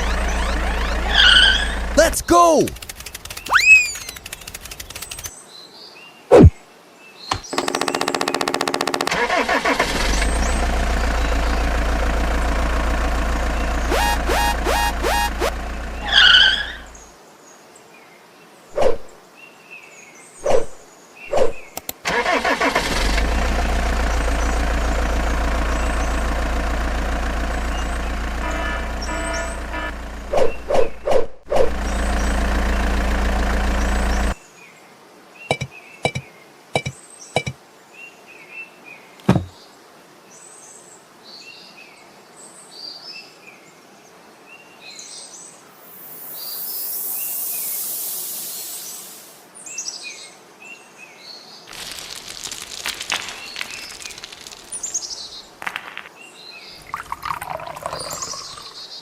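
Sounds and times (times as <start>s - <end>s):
vehicle motor running: 0.0s - 2.1s, 7.3s - 17.0s, 22.6s - 34.4s, 51.7s - 56.1s
birds chirping: 0.0s - 5.3s, 13.3s - 17.1s, 27.6s - 31.1s, 51.7s - 59.0s
scattered clicks: 2.1s - 5.3s
sharp knocks: 35.5s - 36.2s, 36.8s - 37.6s, 39.2s - 39.5s
brief hiss: 45.9s - 49.4s.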